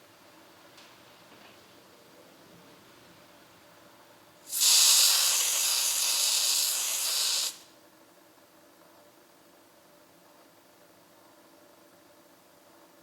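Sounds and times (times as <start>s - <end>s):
loud steady hiss: 4.4s - 7.8s.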